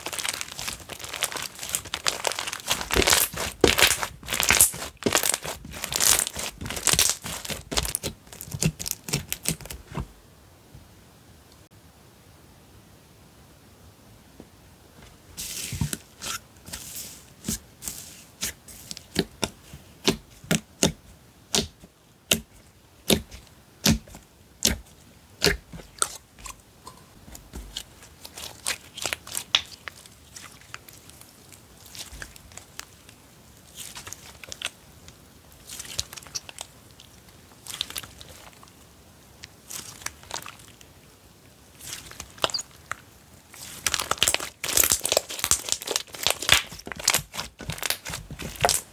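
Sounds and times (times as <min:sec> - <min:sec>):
slime crackling when stretched: 0:00.0 - 0:09.9, 0:35.6 - 0:36.7, 0:41.7 - 0:48.9
slime clicking and popping: 0:00.1 - 0:09.7, 0:43.9 - 0:48.9.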